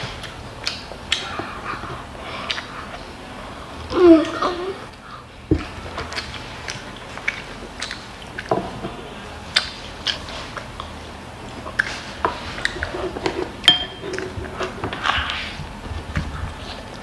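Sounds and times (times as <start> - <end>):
chewing and lip-smacking: 0.0 - 3.2, 5.6 - 8.5, 9.4 - 17.0
spoon tapping glass bowl: 13.7 - 14.0.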